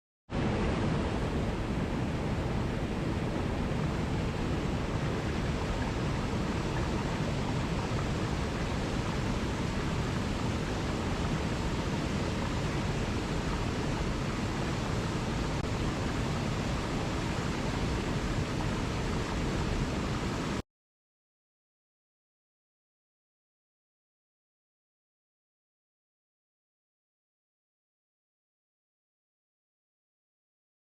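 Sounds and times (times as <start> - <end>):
waterfall roaring: 0.4 - 20.6.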